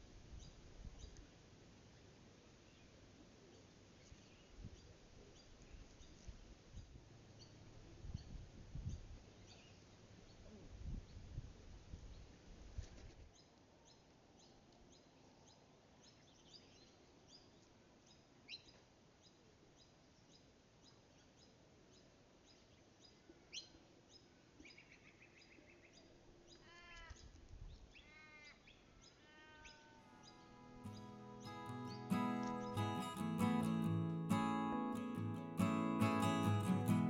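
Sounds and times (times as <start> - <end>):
birds chirping: 28.7 - 37.0.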